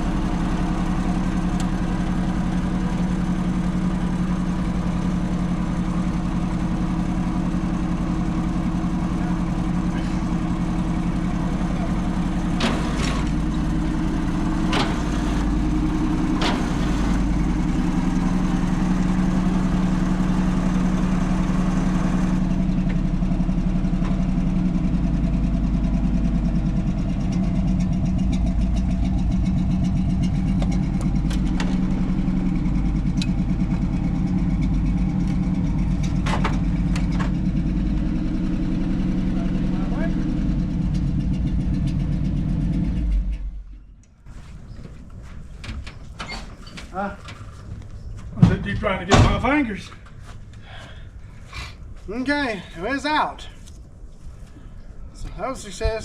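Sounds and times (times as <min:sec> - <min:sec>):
engine idling: 0:00.0 - 0:46.2.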